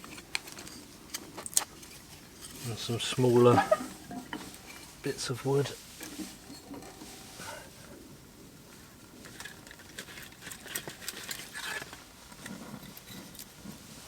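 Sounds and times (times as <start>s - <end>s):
wood clattering into stove: 1.3s - 5.1s.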